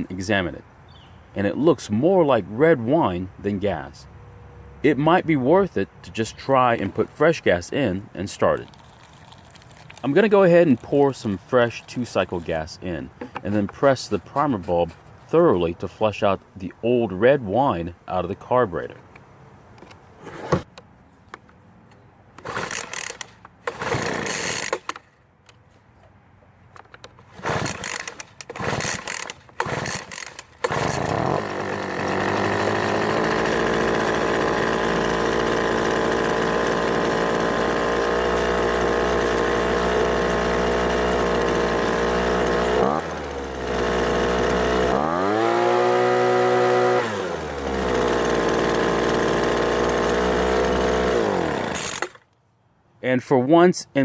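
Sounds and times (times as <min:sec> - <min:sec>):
leaf blower engine running: 0:08.4 - 0:14.9, 0:22.4 - 0:24.8, 0:27.3 - 0:52.2.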